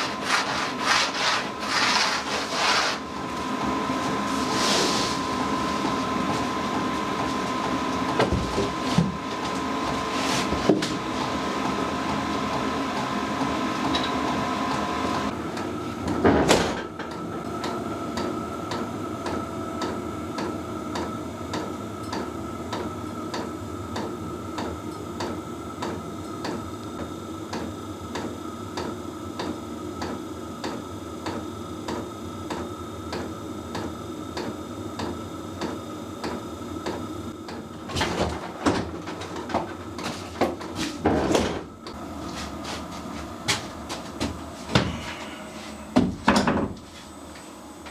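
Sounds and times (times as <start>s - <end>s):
steady hum: 0.0s - 15.4s, 40.8s - 47.9s.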